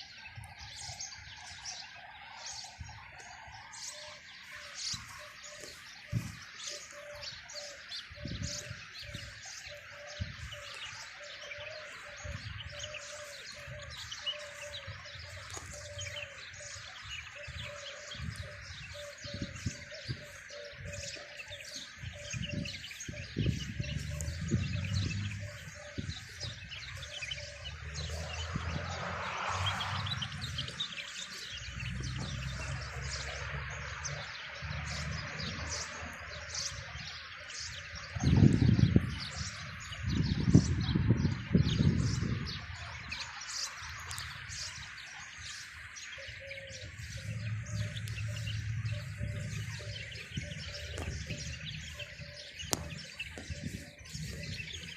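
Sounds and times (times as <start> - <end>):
small birds chirping and twittering: 0.0 - 54.9.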